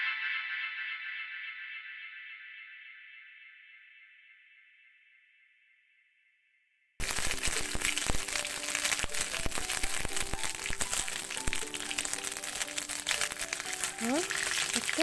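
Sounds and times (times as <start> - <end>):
background music: 7.0 - 15.0
seeds sizzling and popping in oil: 7.0 - 15.0.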